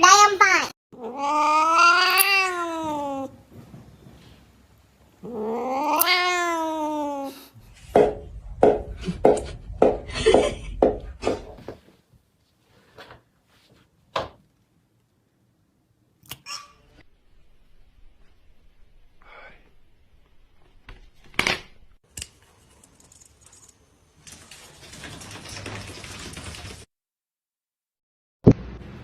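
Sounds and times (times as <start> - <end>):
cat meowing: 1.0 - 3.3, 5.2 - 7.4
low rumble: 7.6 - 11.7.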